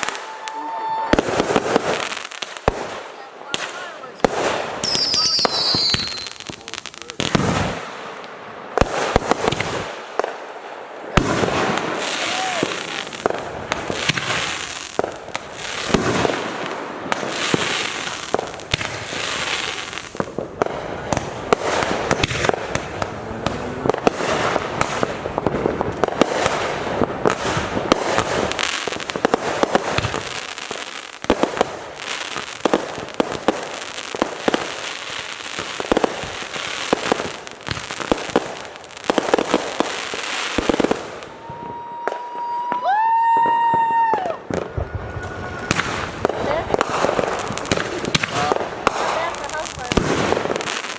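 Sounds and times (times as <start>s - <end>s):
fireworks crackling and hissing: 0.0s - 50.9s
fireworks sharp bangs: 0.0s - 50.9s
deep firework boom: 42.7s - 50.6s.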